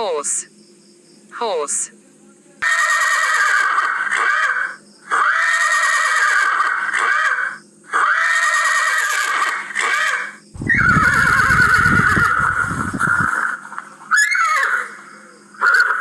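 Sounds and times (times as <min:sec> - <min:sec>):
horse whinnying: 0:10.6 - 0:13.3
low rumble: 0:10.6 - 0:13.3.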